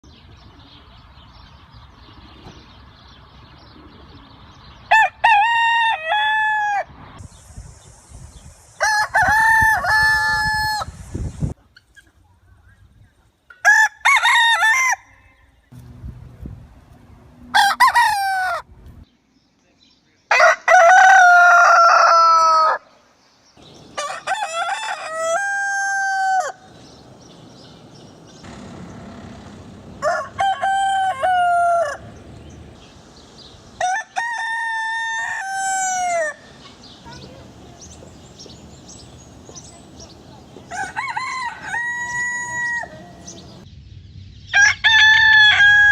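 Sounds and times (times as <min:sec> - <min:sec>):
roosters crowing: 0:04.9 - 0:07.0, 0:08.8 - 0:11.1, 0:13.6 - 0:15.6, 0:17.4 - 0:18.7, 0:20.3 - 0:23.0, 0:23.6 - 0:43.6, 0:44.5 - 0:45.9.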